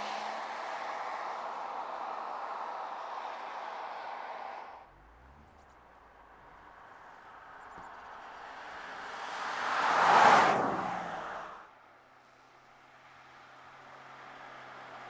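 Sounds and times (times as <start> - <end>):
car tyre and wind noise passing: 0.0 - 11.8.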